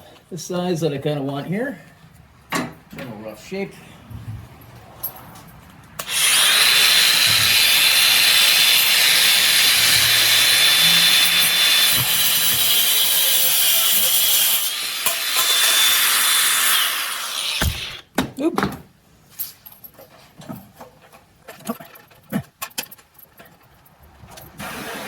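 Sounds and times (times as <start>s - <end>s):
angle grinder grinding metal rod: 6.0s - 18.0s.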